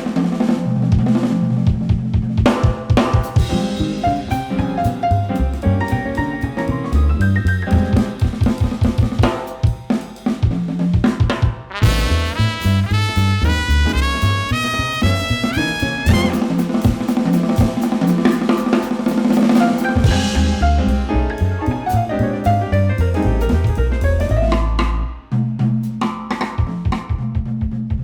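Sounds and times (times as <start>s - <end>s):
jazz band playing: 0.0s - 26.0s
drum kit: 0.0s - 28.0s
walking bass line: 3.4s - 9.2s, 11.8s - 16.6s, 20.0s - 25.8s.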